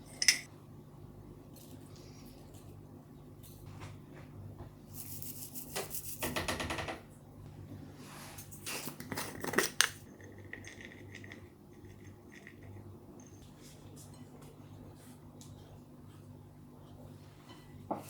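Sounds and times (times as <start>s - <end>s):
utensils clinking: 0.0s - 0.5s.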